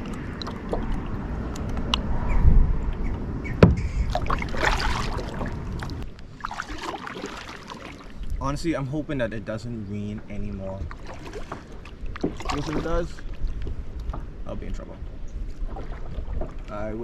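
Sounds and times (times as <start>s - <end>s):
low rumble: 0.0s - 6.3s
water splashing on hull: 0.0s - 8.8s, 10.0s - 17.0s
paddle strokes: 2.9s - 8.4s, 10.6s - 14.3s, 15.4s - 16.8s
sharp knock: 3.6s - 4.0s.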